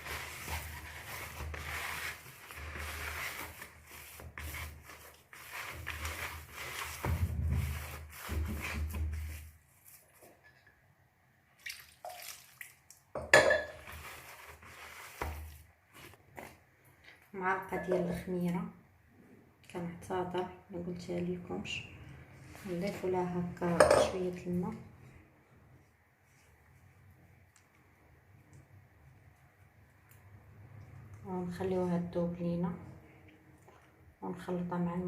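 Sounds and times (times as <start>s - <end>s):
hands squishing wet dough: 0.0s - 10.2s.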